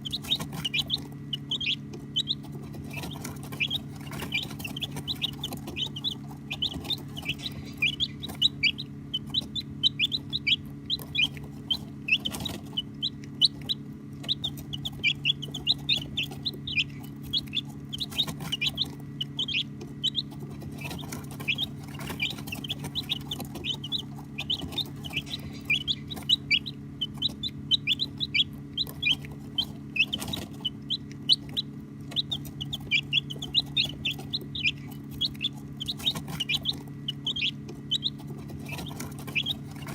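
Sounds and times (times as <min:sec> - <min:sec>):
baby chicks peeping: 0:00.0 - 0:39.9
steady low hum: 0:00.0 - 0:39.9.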